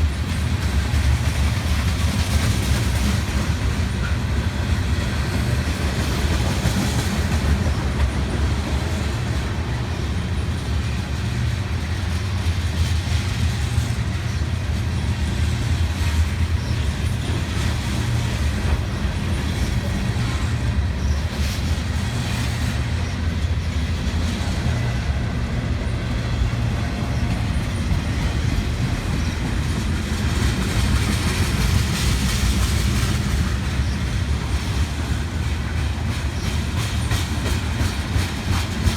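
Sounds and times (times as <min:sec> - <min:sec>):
freight train cars rumbling: 0:00.0 - 0:38.9
wheels clattering on rail joints: 0:00.0 - 0:38.9.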